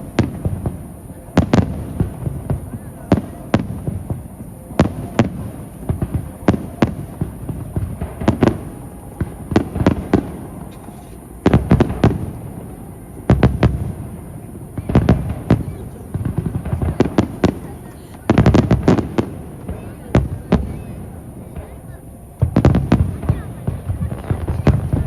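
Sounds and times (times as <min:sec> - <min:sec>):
fireworks bursting with bangs: 0:00.0 - 0:25.0
low rumbling echo: 0:00.0 - 0:25.0.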